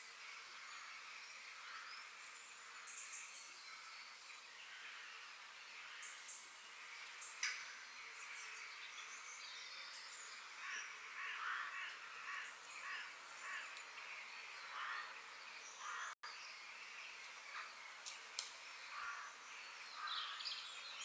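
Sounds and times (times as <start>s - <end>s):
steady outdoor hiss: 0.0s - 21.0s
harsh bird calls: 4.6s - 18.1s, 18.8s - 21.0s.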